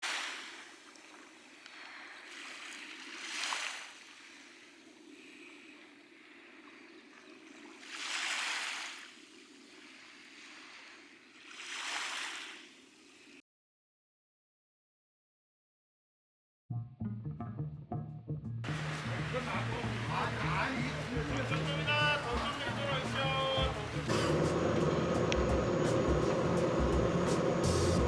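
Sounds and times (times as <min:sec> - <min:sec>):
small waves washing onto beach: 0:00.0 - 0:13.4, 0:18.7 - 0:28.0.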